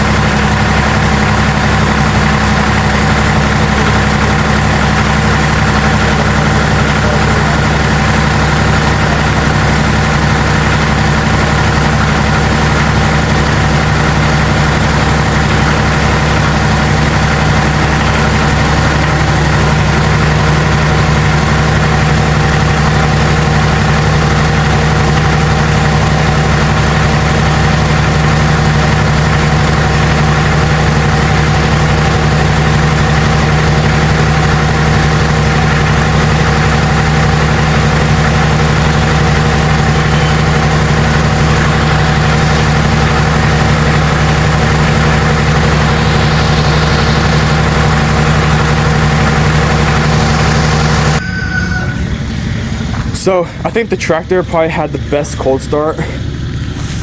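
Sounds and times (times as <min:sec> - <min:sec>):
tractor diesel engine idling: 0:00.0 - 0:57.0.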